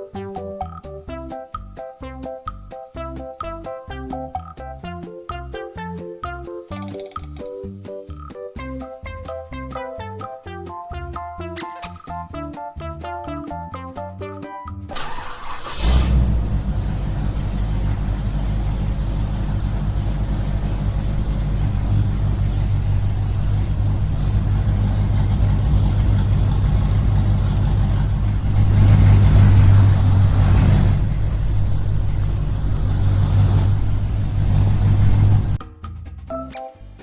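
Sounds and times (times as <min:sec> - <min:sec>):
small engine running: 0:14.9 - 0:35.6.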